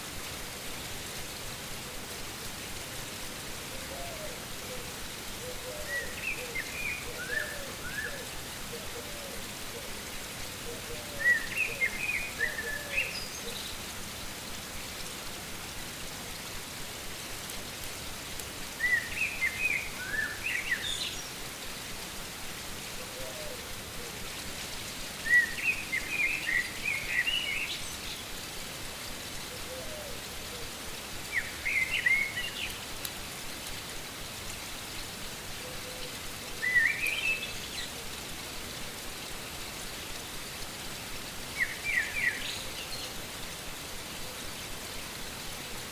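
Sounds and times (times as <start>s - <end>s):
songbird chirping: 18.8s - 21.3s, 31.3s - 33.1s, 35.0s - 38.1s, 41.6s - 43.3s.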